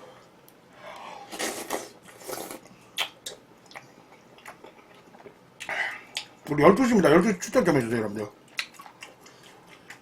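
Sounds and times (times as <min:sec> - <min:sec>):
person chewing food: 0:00.4 - 0:06.4, 0:08.4 - 0:10.0.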